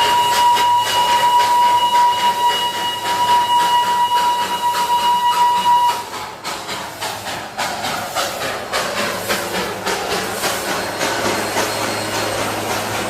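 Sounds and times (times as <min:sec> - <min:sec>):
hiss: 0:00.0 - 0:13.0
toy train rhythmic knocking: 0:00.0 - 0:13.0.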